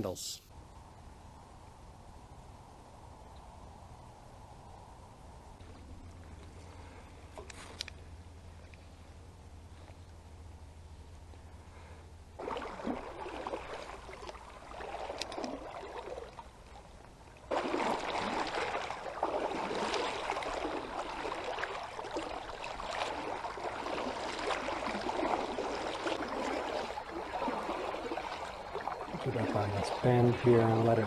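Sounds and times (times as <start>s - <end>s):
river water rushing and splashing: 12.4s - 16.6s, 17.5s - 31.0s.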